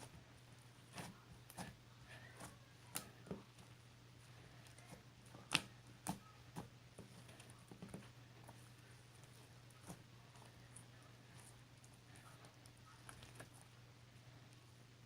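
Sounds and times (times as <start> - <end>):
steady low hum: 0.0 - 15.0
faint clicks and taps: 4.6 - 13.8.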